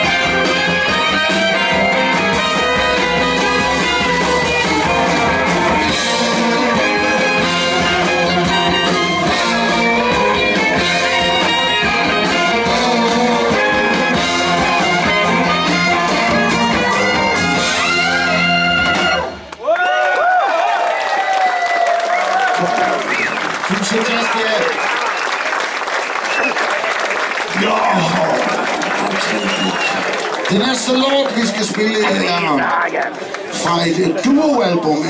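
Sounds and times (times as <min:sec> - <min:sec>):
electric guitar: 0:00.0 - 0:19.5
horns: 0:00.0 - 0:19.6
drums: 0:00.0 - 0:19.8.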